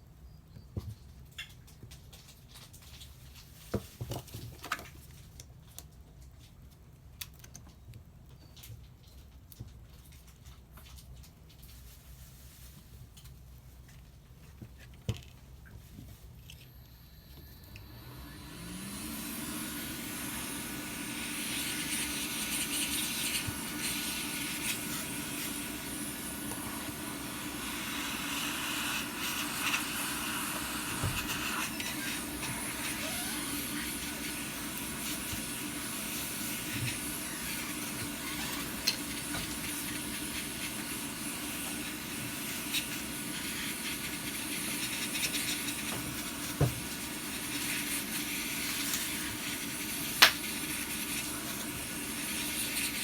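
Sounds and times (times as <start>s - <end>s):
hot-air blower whining and hissing: 16.6s - 53.0s.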